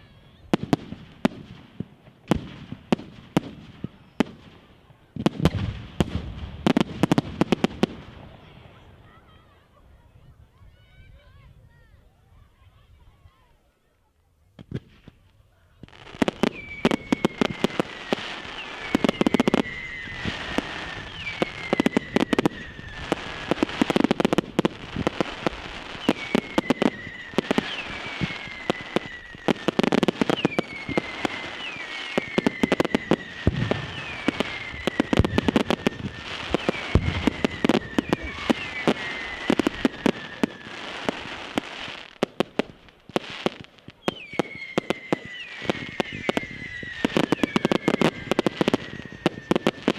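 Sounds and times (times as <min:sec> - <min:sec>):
fireworks bangs and crackling: 0:00.0 - 0:10.2, 0:14.5 - 0:49.9
falling firework whistles: 0:16.1 - 0:42.2, 0:43.1 - 0:49.9.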